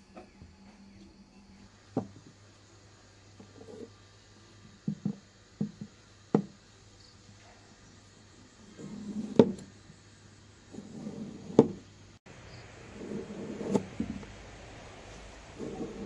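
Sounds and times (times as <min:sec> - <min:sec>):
low steady hum: 0:00.0 - 0:16.0
sharp knocks on a hard surface: 0:04.8 - 0:06.6.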